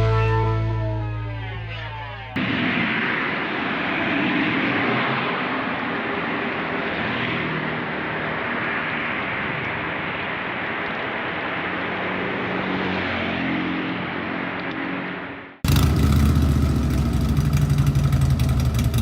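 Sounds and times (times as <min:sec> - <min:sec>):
wind and road rush: 0:02.4 - 0:19.0
motorcycle engine running: 0:15.6 - 0:19.0.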